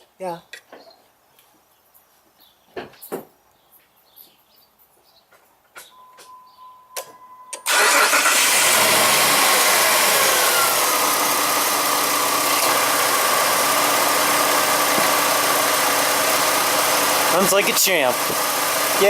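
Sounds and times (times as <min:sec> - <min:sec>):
brief steady beep: 0:05.9 - 0:07.7
car engine starting and idling: 0:07.6 - 0:19.0.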